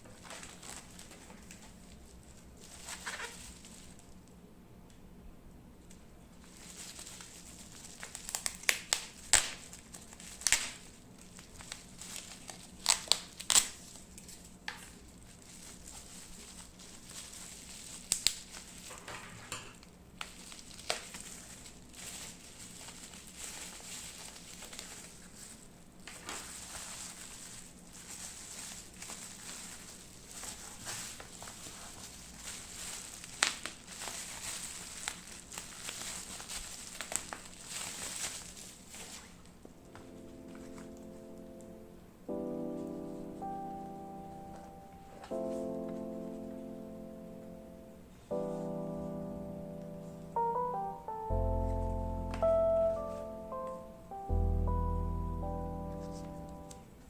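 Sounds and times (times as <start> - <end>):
packaging crinkling: 0.1 - 4.2, 6.4 - 19.0, 20.2 - 41.7.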